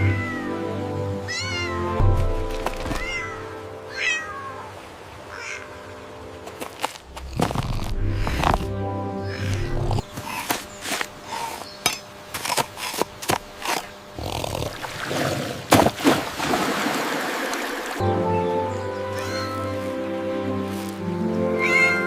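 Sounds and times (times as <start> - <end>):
water rushing and splashing: 14.7 - 18.1.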